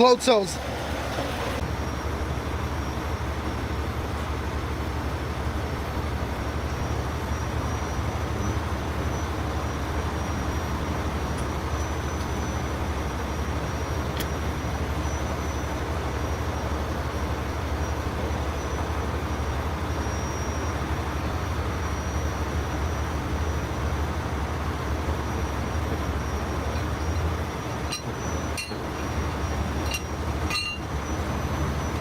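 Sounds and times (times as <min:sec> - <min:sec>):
heavy engine rumbling: 0:00.0 - 0:32.0.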